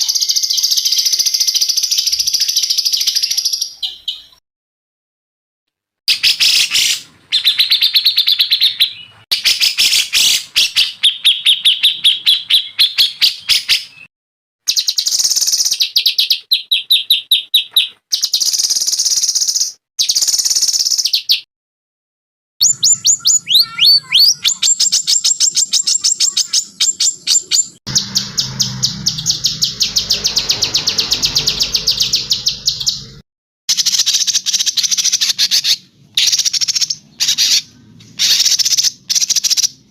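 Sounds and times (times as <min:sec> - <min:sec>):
songbird trills and chirps: 0:22.6 - 0:33.2
whistled up-and-down sweeps: 0:27.0 - 0:33.2.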